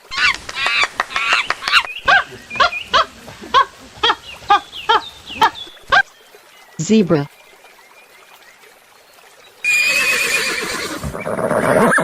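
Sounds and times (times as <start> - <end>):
monkeys calling: 0.0 - 6.2.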